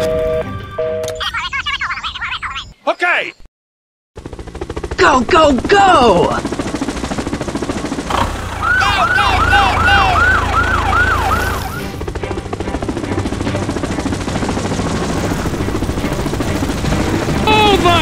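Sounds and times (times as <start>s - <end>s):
helicopter rotor chop: 4.2s - 18.0s
siren wails: 8.1s - 12.1s.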